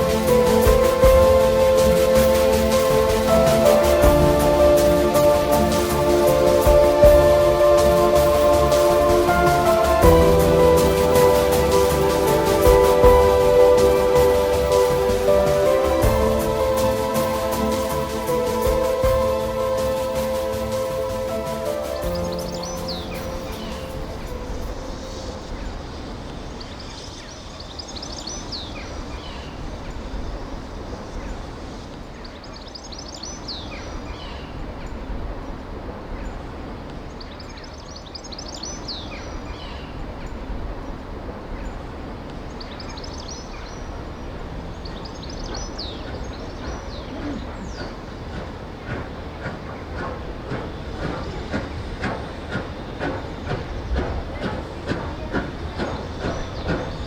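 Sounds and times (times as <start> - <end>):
train rumbling: 0.0 - 57.0
train wheel clicks over rail joints: 44.9 - 57.0.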